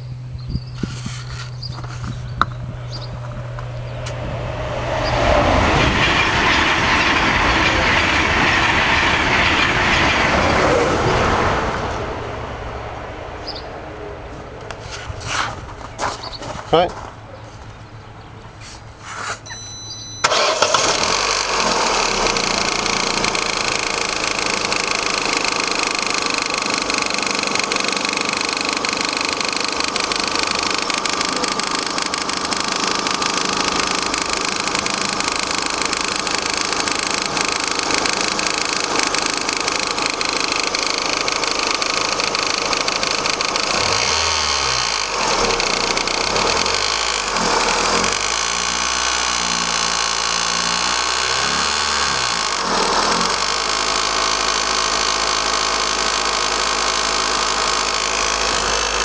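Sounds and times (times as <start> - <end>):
rapid engine tapping: 0.0 - 4.3, 20.2 - 59.0
car engine starting and idling: 0.0 - 59.0.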